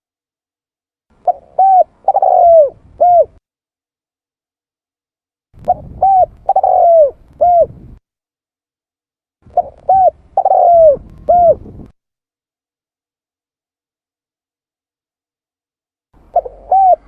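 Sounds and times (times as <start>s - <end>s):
dove cooing: 1.2s - 3.4s, 5.6s - 8.0s, 9.5s - 11.9s, 16.2s - 17.0s.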